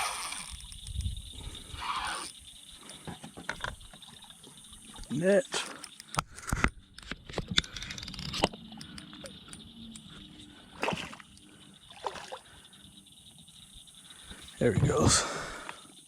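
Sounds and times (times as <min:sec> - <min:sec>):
water sloshing: 0:10.2 - 0:12.6
fish splashing in water: 0:10.7 - 0:11.3, 0:11.9 - 0:12.6.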